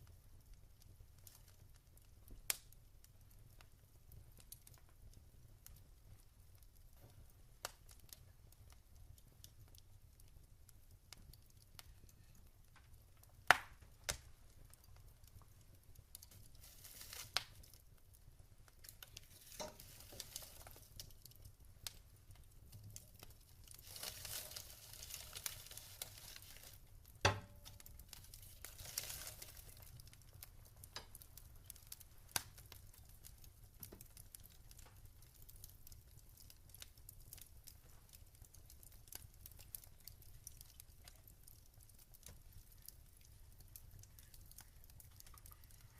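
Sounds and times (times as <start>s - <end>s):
wood fire crackling and popping: 0.0s - 45.9s
fire hissing: 16.1s - 17.8s, 18.7s - 32.7s.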